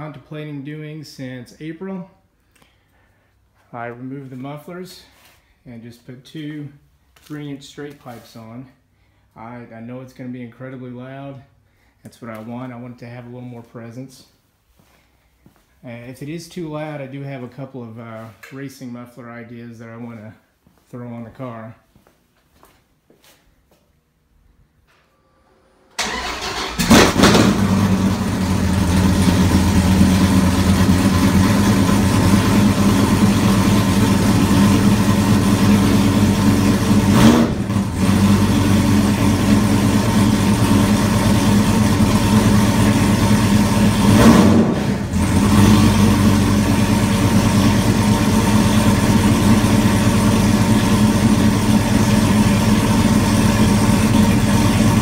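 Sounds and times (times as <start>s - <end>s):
car engine starting and idling: 25.3s - 55.0s
car engine revving: 26.0s - 55.0s.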